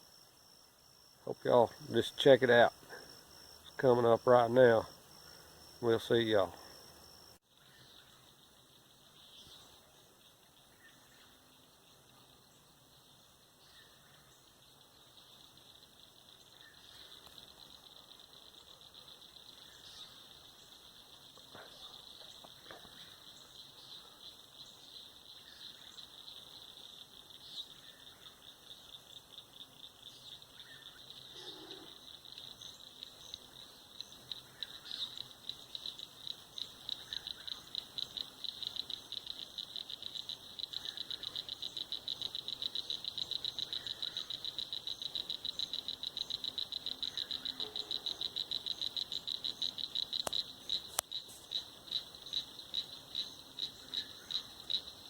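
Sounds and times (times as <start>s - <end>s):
sharp clicks: 50.2s - 51.1s.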